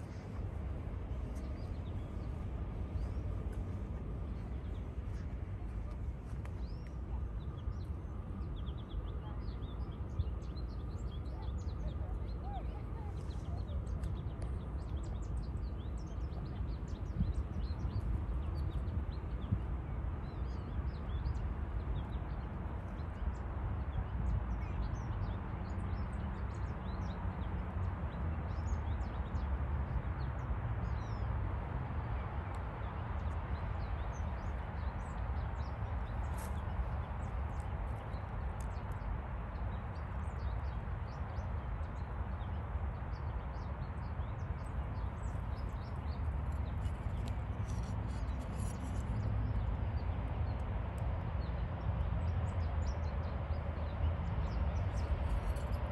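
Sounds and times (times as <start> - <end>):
steady low rumble: 0.0 - 25.0
songbirds chirping: 0.0 - 55.9.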